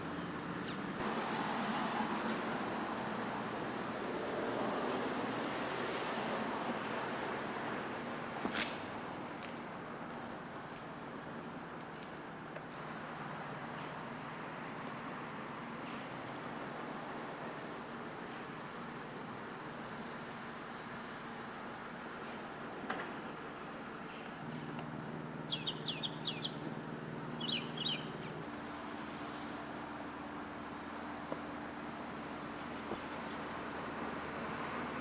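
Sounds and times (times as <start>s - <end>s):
insect trilling: 0.0s - 7.1s
outdoor hiss: 0.0s - 24.6s
bird chirping: 10.1s - 10.5s, 25.5s - 26.6s, 27.4s - 28.2s.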